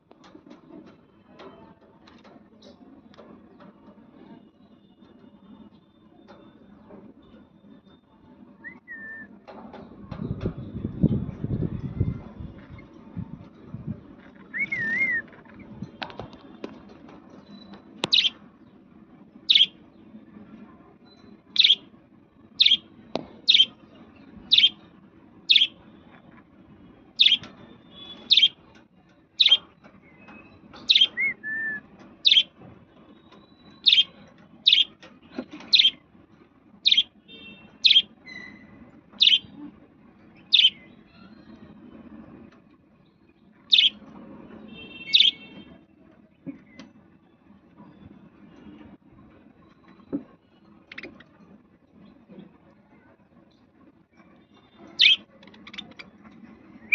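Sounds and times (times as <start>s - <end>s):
parrot chirping: 17.5s - 18.4s, 19.5s - 19.8s, 21.6s - 21.9s, 22.6s - 23.8s, 24.5s - 24.8s, 25.5s - 25.8s, 27.2s - 28.6s, 30.9s - 31.4s, 32.2s - 32.5s, 33.8s - 35.0s, 35.7s - 36.0s, 36.8s - 37.1s, 37.8s - 39.6s, 40.4s - 41.4s, 43.7s - 44.0s, 45.1s - 45.5s, 55.0s - 56.0s.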